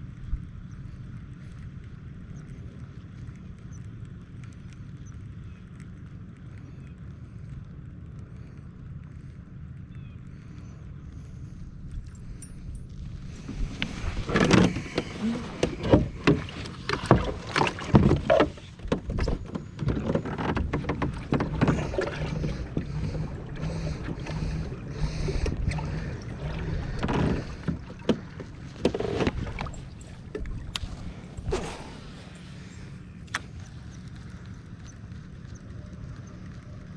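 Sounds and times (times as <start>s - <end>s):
steady low rumble: 0.0s - 36.9s
kayak knocks and clatter: 13.3s - 32.7s
water splashing: 13.3s - 34.4s.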